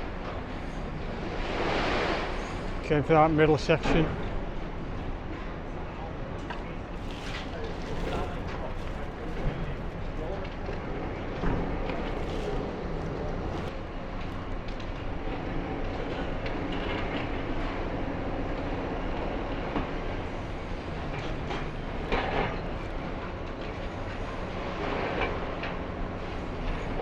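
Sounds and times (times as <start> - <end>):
excavator running: 0.0 - 27.0.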